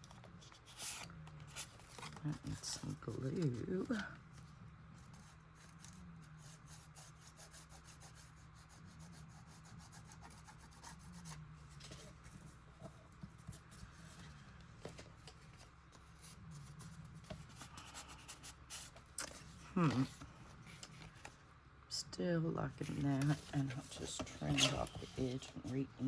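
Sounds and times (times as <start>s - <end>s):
low steady hum: 0.0s - 26.0s
paper rubbing and scratching: 0.4s - 12.6s, 22.8s - 25.9s.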